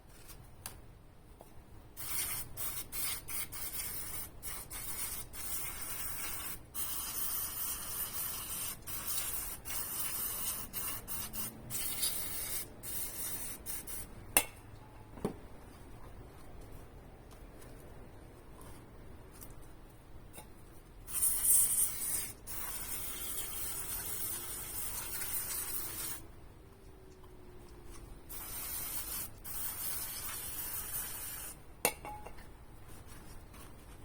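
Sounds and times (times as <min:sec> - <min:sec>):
aerosol spray can hissing: 0:02.0 - 0:14.1, 0:21.1 - 0:26.2, 0:28.3 - 0:31.6.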